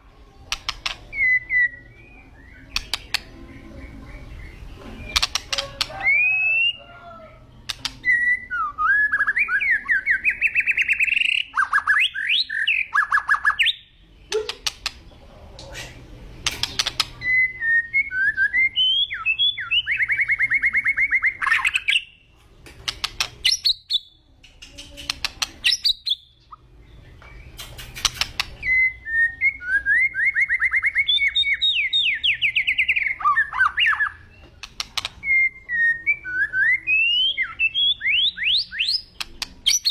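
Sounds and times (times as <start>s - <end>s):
sharp bird clicks: 0.5s - 1.3s, 2.5s - 6.3s, 7.6s - 8.2s, 10.2s - 17.4s, 22.6s - 26.6s, 27.2s - 28.9s, 30.9s - 35.4s, 38.0s - 39.9s.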